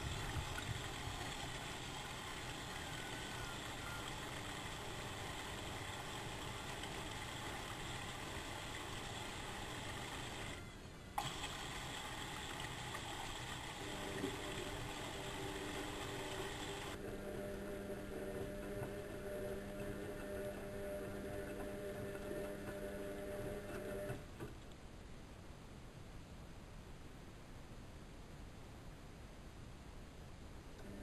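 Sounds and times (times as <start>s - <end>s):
washing machine humming: 0.0s - 24.3s.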